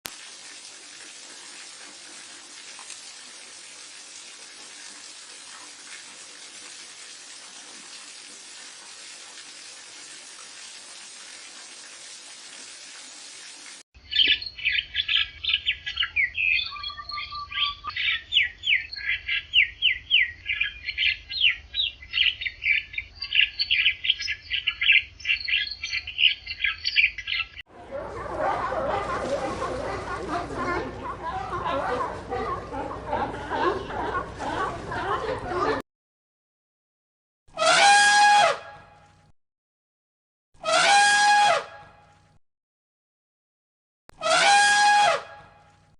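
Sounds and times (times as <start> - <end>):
running water hiss: 0.1 - 13.8.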